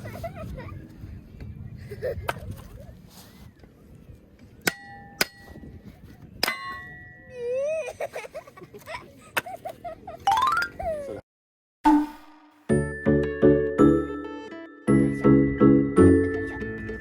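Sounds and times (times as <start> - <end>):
sharp metallic dings: 4.7 - 5.6.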